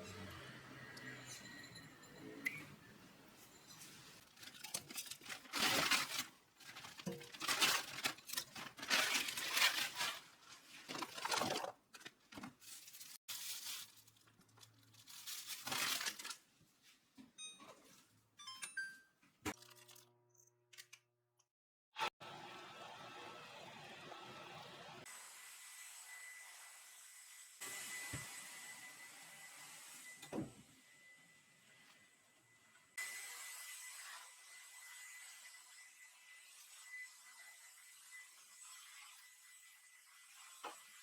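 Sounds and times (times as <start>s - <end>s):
packaging tearing and crinkling: 4.3s - 11.8s, 12.6s - 16.4s.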